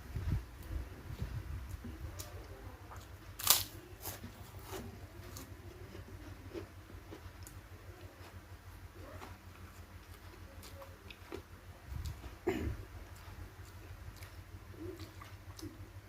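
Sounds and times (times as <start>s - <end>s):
chewing with crisp crunches: 0.6s - 16.0s.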